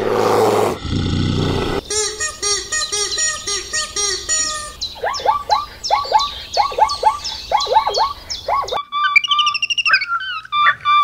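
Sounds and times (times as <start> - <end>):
bird chirps sweeping downward: 1.8 - 11.0
high warbling bird twitter: 1.8 - 11.0.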